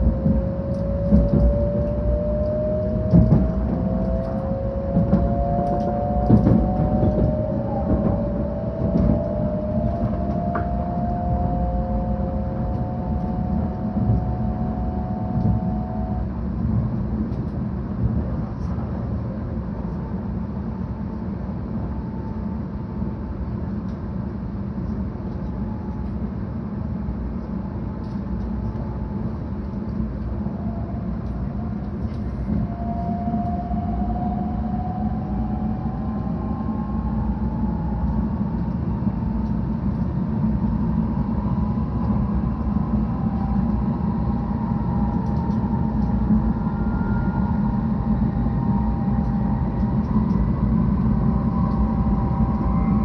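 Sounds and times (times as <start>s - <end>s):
train running rumble: 0.0s - 53.0s.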